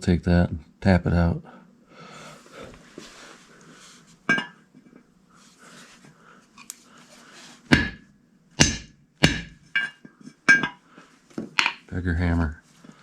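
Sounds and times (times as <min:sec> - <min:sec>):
hammer striking metal socket: 0:08.6 - 0:10.8.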